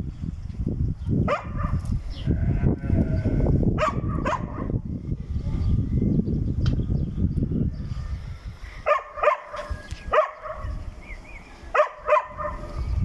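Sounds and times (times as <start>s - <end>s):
dog barking: 1.3s - 1.8s, 3.7s - 4.8s, 8.8s - 10.7s, 11.7s - 12.7s.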